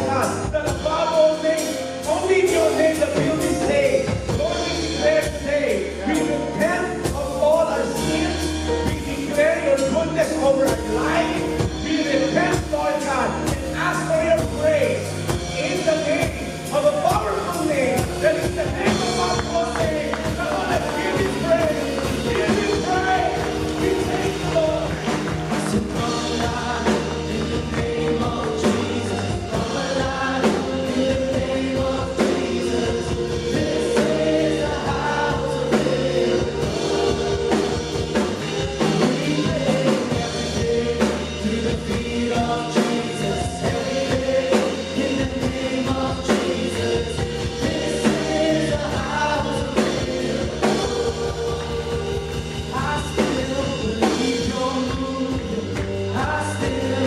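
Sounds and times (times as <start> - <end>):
worship band playing gospel song: 0.0 - 57.0
group singing: 18.0 - 57.0.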